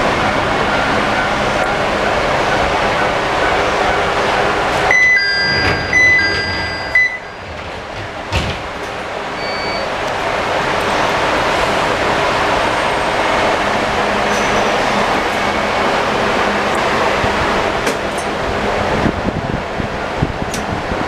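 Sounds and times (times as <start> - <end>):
train running noise: 0.0 - 21.0
sliding doors shutting with thud: 4.7 - 9.1
electronic door chime: 4.9 - 7.6, 9.4 - 9.9.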